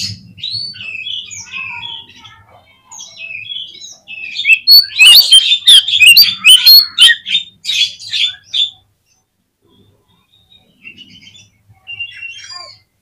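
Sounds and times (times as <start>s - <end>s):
bird singing whistled notes: 3.2s - 7.4s.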